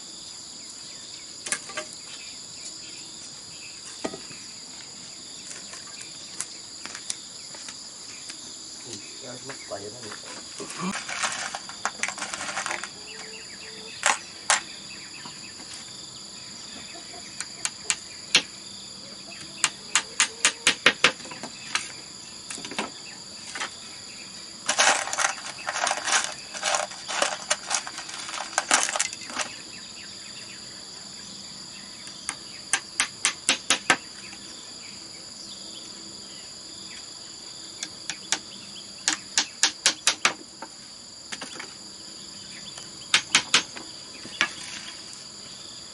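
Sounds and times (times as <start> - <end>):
insects chirring: 0.0 - 45.9
sharp knocks on bamboo: 4.0 - 4.3, 17.6 - 18.5, 19.6 - 21.9, 32.3 - 34.1, 38.1 - 40.7, 43.1 - 44.6
rough scraping: 10.3 - 13.2, 24.6 - 29.6.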